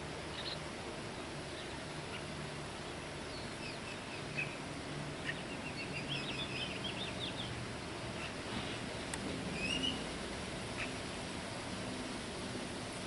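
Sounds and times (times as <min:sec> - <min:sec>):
small birds chirping: 0:00.0 - 0:11.6
steady background hiss: 0:00.0 - 0:13.0.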